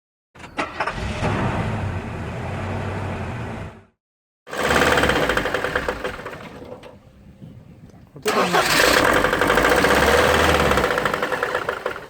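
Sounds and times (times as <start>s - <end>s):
diesel engine with rod knock: 8.2s - 12.0s.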